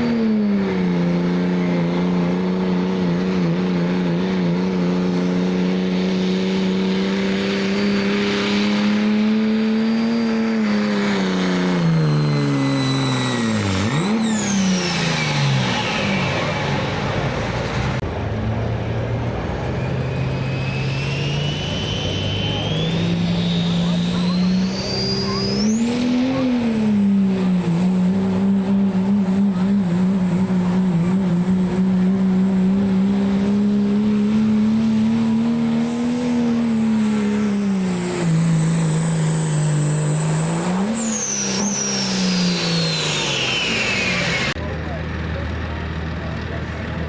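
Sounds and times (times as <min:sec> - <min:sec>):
diesel pickup engine pulling hard: 0:00.0 - 0:47.0
turbo whistle spooling down: 0:07.7 - 0:18.0, 0:19.3 - 0:27.3, 0:33.4 - 0:44.6.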